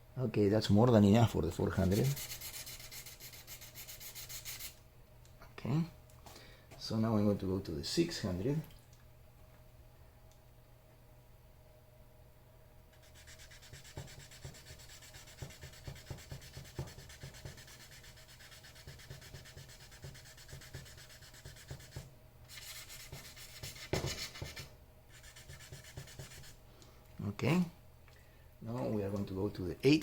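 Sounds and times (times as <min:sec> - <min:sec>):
sandpaper sanding strokes: 0:01.8 - 0:04.8, 0:13.0 - 0:26.6.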